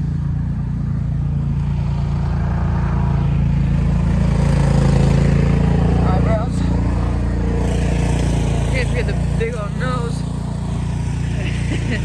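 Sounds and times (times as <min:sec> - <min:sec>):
engine humming: 0:03.5 - 0:12.0.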